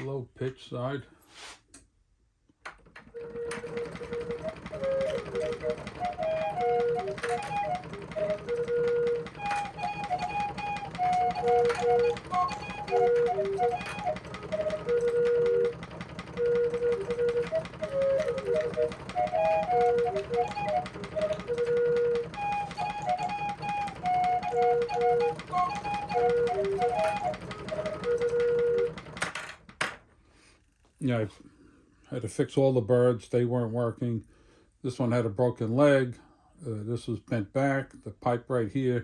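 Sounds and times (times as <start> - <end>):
clock mechanism clatter: 2.7 - 29.9
flute clock melody: 3.1 - 29.4.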